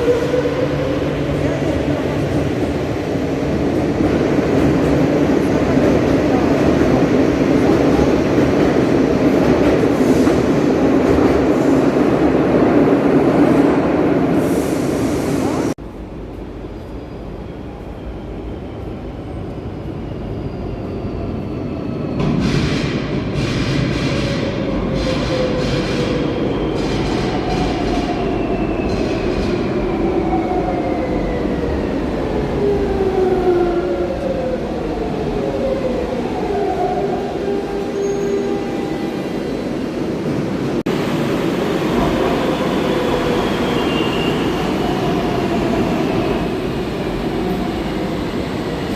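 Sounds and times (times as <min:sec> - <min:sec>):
metro train running: 0:00.0 - 0:48.9.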